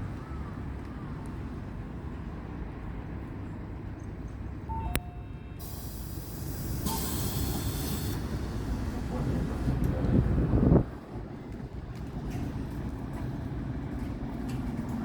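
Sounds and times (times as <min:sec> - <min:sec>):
short beep: 0:04.7 - 0:06.0, 0:06.9 - 0:08.2
compressed air hiss: 0:05.6 - 0:09.2
diesel bus engine idling: 0:05.6 - 0:14.7.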